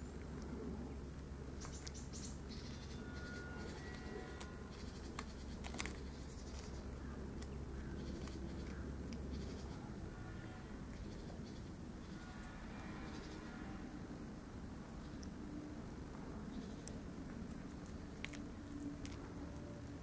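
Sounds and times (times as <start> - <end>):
steady low hum: 0.0 - 20.0
cat chewing and crunching: 3.6 - 10.2, 14.8 - 20.0.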